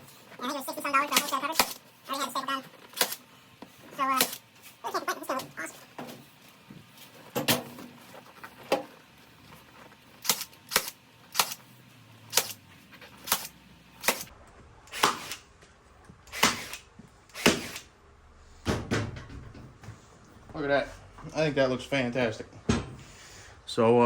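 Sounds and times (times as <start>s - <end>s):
staple gun firing: 10.2s - 11.6s, 12.3s - 12.6s.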